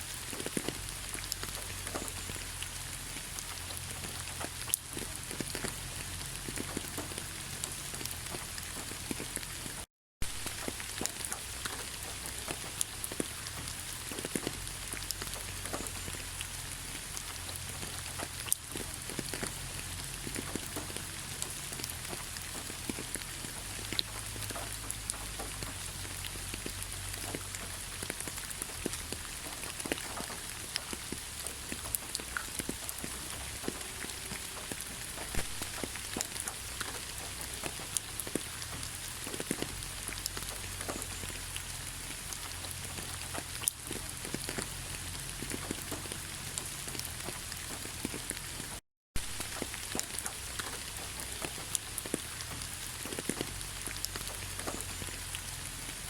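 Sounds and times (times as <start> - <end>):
raindrops pattering on surfaces: 0.0 - 56.0
heavy rain hissing: 10.2 - 47.9.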